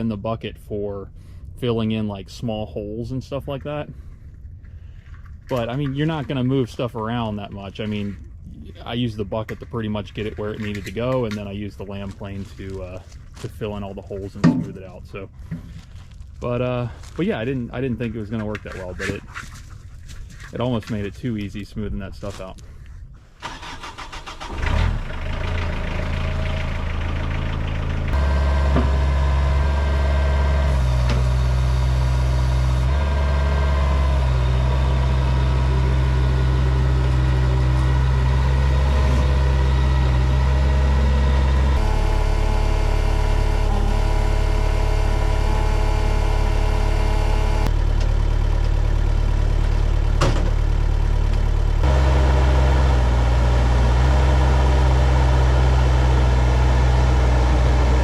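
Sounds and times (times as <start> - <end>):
skid steer engine running: 24.4 - 58.0.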